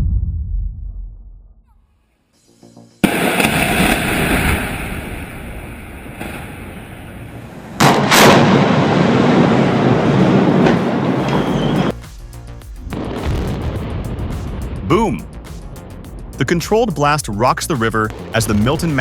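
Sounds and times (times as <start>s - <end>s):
long rumble: 0.0s - 1.6s
explosive demolition blasts: 3.0s - 11.9s, 12.9s - 15.2s, 18.1s - 19.0s.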